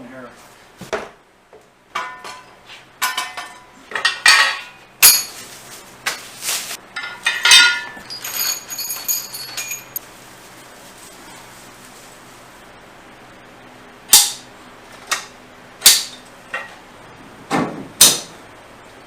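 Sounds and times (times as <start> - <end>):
kit parts clinking and knocking: 7.0 - 10.0.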